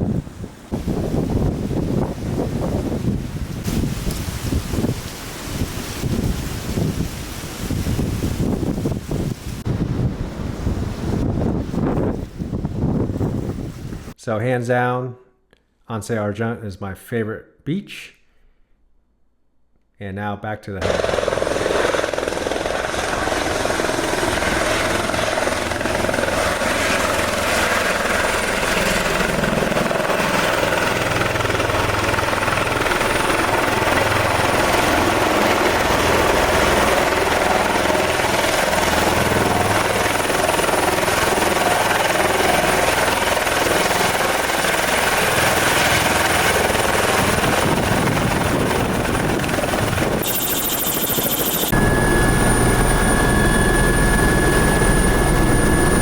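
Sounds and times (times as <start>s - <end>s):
helicopter rotor and engine: 0.0s - 3.2s, 20.8s - 56.0s
faint high whine: 50.2s - 56.0s.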